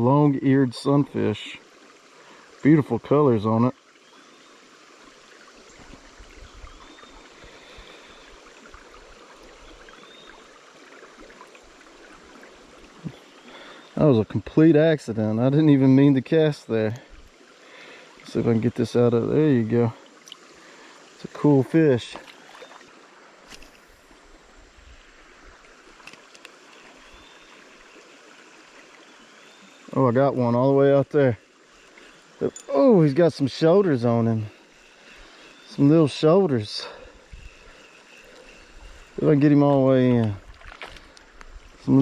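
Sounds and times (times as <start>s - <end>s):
creek water trickling: 0.0s - 42.0s
faint clicks: 20.2s - 20.5s, 26.0s - 26.9s.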